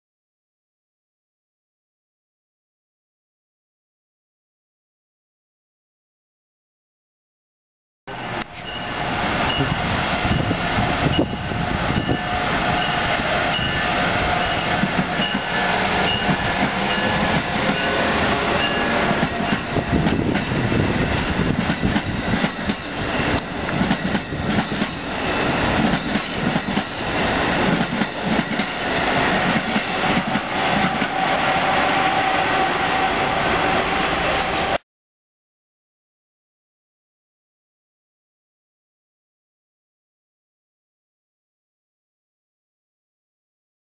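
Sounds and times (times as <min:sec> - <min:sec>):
train wheels rumbling on rail: 0:08.1 - 0:34.8.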